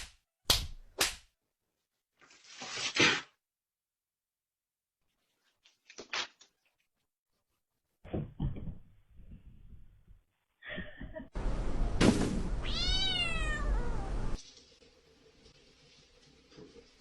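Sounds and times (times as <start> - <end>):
thumps and knocks: 8.0 - 9.0
cat meowing: 12.6 - 14.4.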